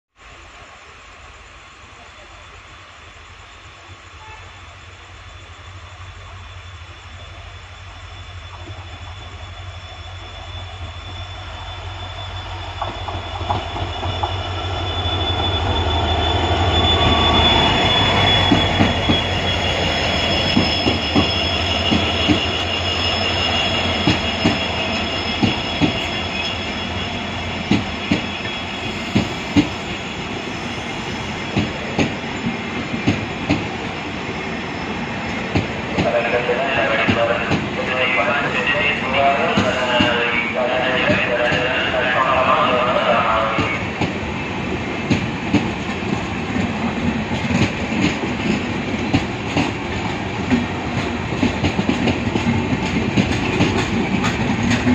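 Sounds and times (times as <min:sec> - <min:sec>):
locomotive approaching: 0:00.3 - 0:54.9
thin wheel squeal: 0:08.0 - 0:31.5.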